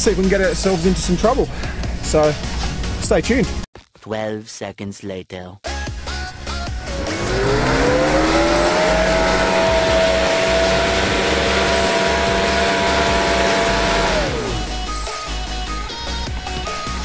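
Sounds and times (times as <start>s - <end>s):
engine revving under load: 6.4s - 15.1s.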